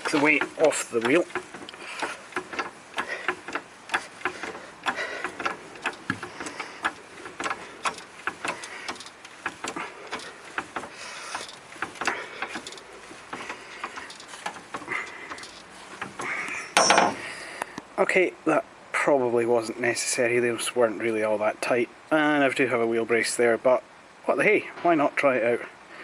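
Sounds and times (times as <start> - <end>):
car jack metallic clicks: 0.0 - 17.2.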